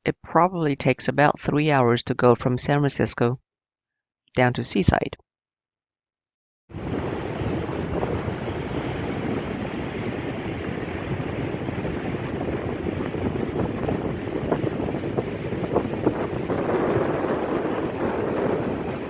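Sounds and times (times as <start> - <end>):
surf on beach: 6.7 - 19.0
wind buffeting microphone: 6.7 - 19.0.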